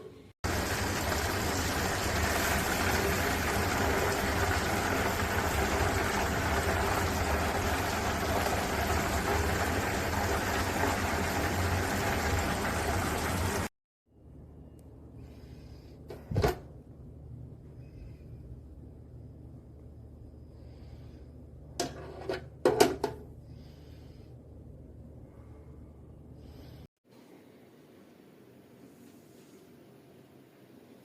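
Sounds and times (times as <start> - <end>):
hot oil sizzling in a deep fryer: 0.4 - 13.7.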